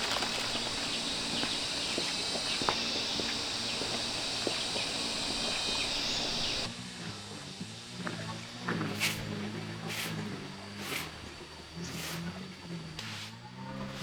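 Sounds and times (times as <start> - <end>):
footsteps crunching twigs and leaves: 0.0 - 6.7
high-pitched insect chorus: 0.0 - 6.7.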